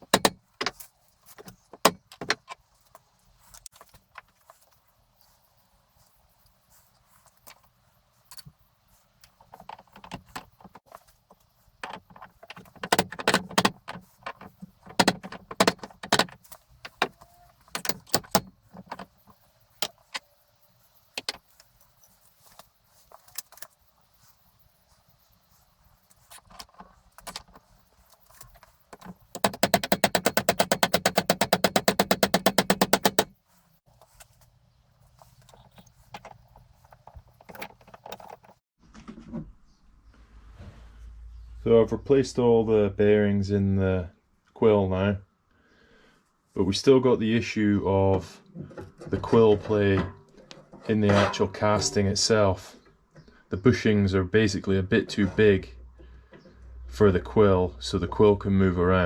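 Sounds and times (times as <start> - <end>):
metal parts knocking together: 0.0 - 2.6, 9.2 - 11.0, 11.8 - 20.4, 21.0 - 21.5, 26.4 - 33.4, 35.2 - 38.6
fast run of loud clicks: 29.0 - 33.3.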